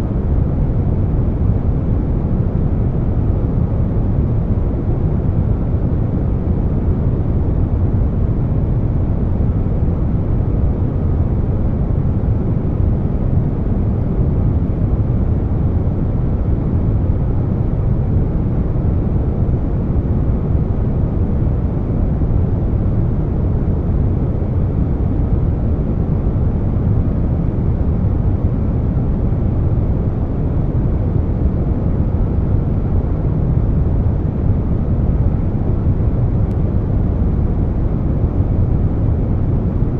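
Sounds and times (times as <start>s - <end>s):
air conditioner noise: 0.0s - 39.9s.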